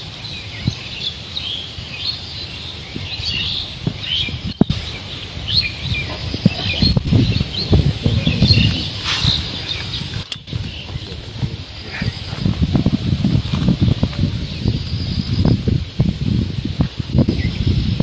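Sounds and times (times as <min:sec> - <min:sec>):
small birds chirping: 0:00.0 - 0:18.0
low thumps and rustles: 0:05.8 - 0:18.0.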